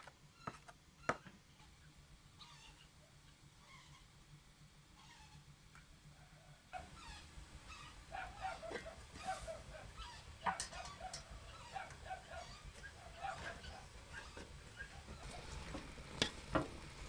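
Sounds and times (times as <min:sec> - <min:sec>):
animals calling: 0:02.4 - 0:04.1, 0:06.2 - 0:16.2.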